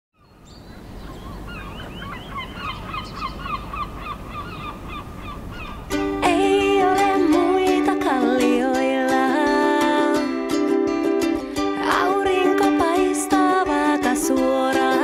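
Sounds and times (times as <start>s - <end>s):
bird chirps: 0.2s - 5.9s
music with held chord and melody: 5.9s - 15.0s.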